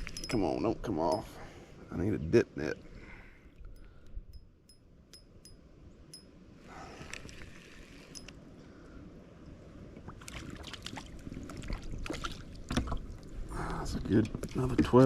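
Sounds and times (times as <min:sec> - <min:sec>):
brief rustle or splash: 0:10.1 - 0:13.1.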